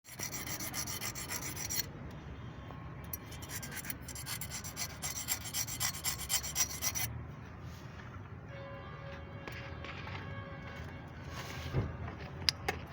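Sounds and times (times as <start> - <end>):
hand tool rasping back and forth: 0.0 - 1.9, 3.1 - 7.1.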